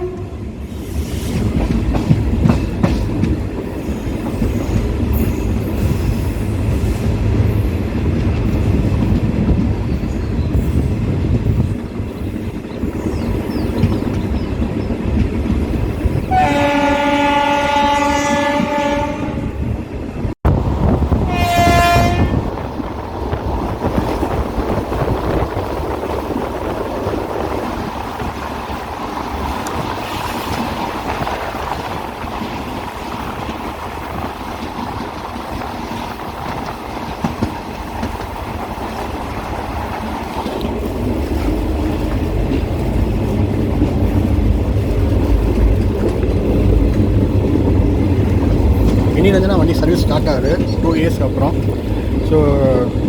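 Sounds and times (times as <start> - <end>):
locomotive horn: 0.0 - 0.4, 16.3 - 19.6, 21.2 - 22.6
moving train rumble: 0.0 - 53.0.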